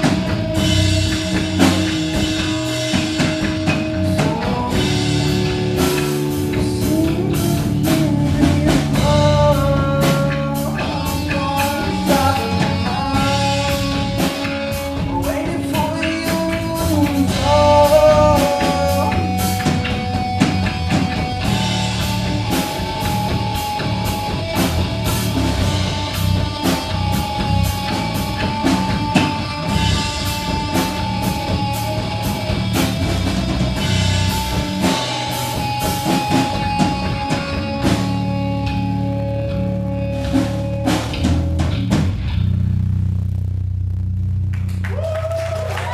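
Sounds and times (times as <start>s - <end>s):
held guitar notes: 0.0s - 44.5s
drum kit: 0.0s - 45.9s.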